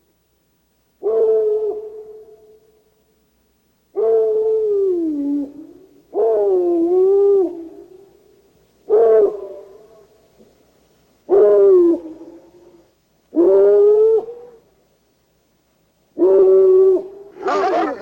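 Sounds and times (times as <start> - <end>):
dog howling: 17.4 - 18.0.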